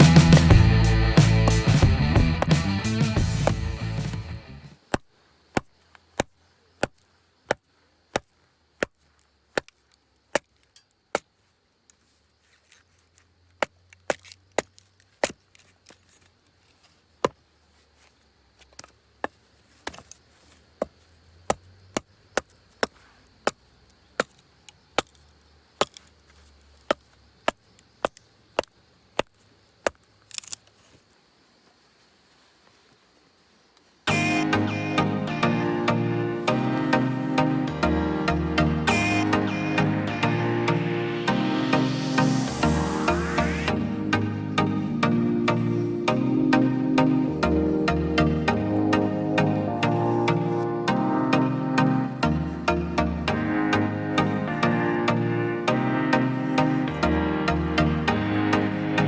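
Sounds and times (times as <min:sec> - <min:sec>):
wood chopping strikes: 0:01.2 - 0:03.8, 0:04.9 - 0:09.0.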